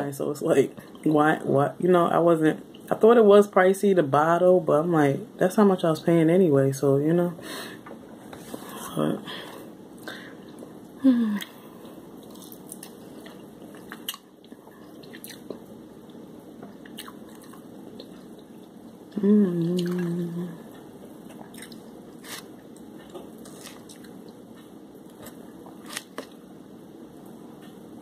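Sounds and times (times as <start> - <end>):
person humming mmm: 11.0 - 11.6, 19.1 - 20.8
crunchy chewing: 12.2 - 18.5, 20.7 - 26.4.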